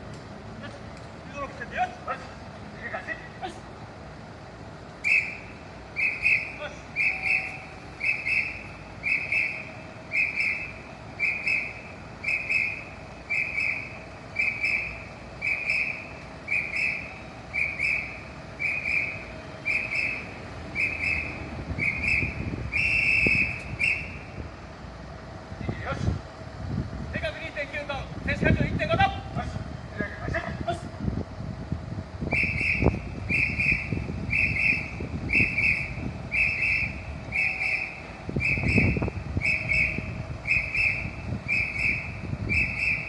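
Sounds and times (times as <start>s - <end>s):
signal whistle blasts: 5.0s - 24.4s, 32.2s - 43.0s.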